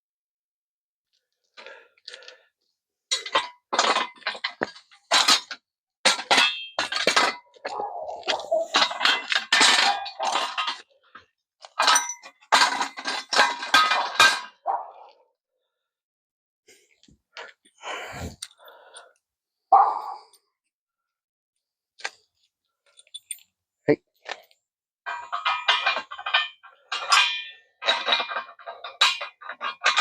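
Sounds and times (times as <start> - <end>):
metal tools clattering: 3.1 - 14.6, 22.9 - 23.5, 25.1 - 30.0.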